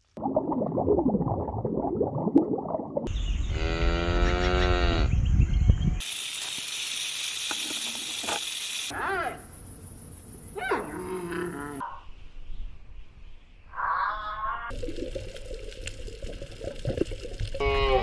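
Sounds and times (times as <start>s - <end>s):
cow mooing: 3.5s - 5.1s
steady hiss: 6.0s - 10.5s.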